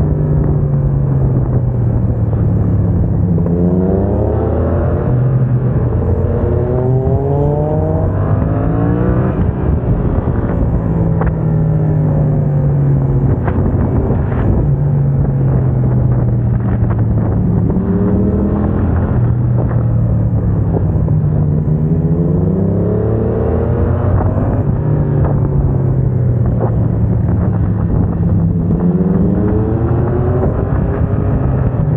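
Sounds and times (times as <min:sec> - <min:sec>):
motorcycle engine revving: 0:00.0 - 0:31.9.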